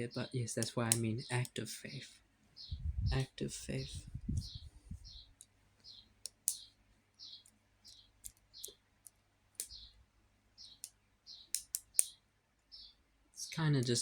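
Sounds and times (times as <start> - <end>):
small bird chirping: 0.0 - 14.0
sharp clicks: 5.4 - 6.7, 7.4 - 10.0, 10.6 - 12.2.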